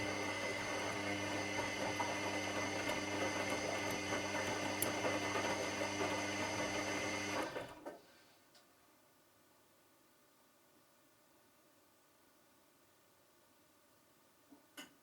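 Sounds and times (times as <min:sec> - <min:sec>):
washing machine motor hum: 0:00.0 - 0:07.9.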